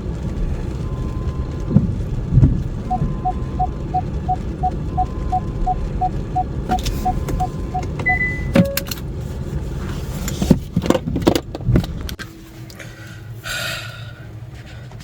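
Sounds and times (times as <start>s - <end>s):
car cabin hum: 0.0s - 12.8s
short electronic tones: 2.8s - 8.9s
rapid beeping chime: 2.9s - 8.8s
clicks and knocks of car controls: 6.4s - 9.1s, 10.2s - 12.2s.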